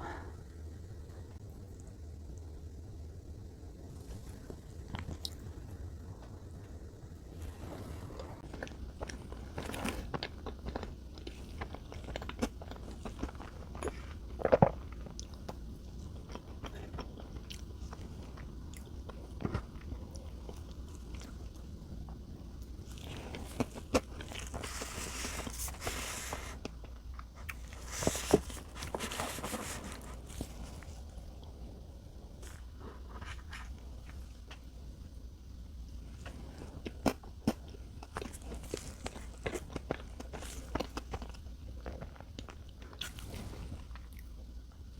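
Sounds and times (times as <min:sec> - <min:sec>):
chewing and biting: 0:08.4 - 0:21.7, 0:36.2 - 0:44.3.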